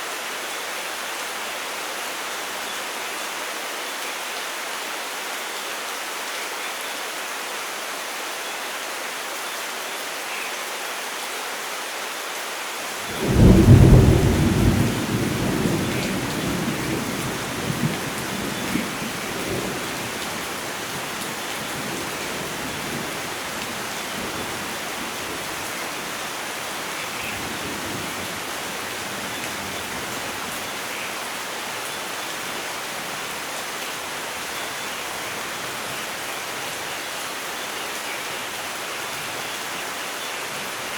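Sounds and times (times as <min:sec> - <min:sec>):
steady rain: 0:00.0 - 0:40.9
thunder clap and rumble: 0:13.1 - 0:20.4.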